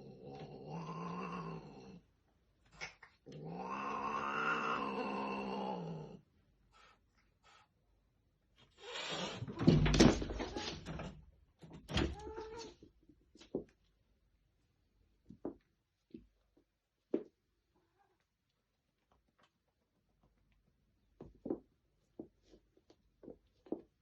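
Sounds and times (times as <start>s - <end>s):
cats yowling: 3.4s - 5.6s.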